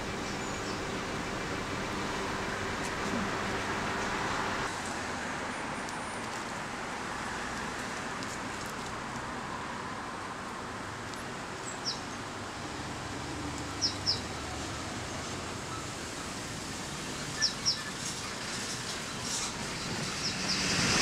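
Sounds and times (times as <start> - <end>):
small bird chirping: 13.8 - 14.3.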